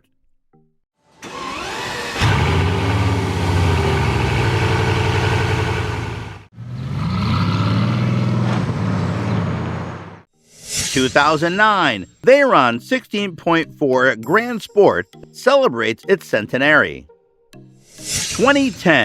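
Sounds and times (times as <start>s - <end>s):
car engine revving: 1.2s - 10.3s.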